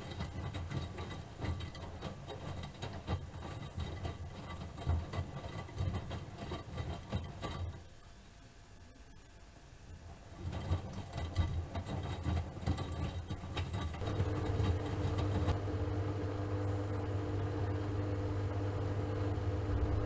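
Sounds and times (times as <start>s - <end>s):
washing machine knocking and rattling: 0.0s - 7.9s, 10.3s - 15.6s
washing machine motor hum: 0.0s - 8.3s, 9.6s - 20.0s.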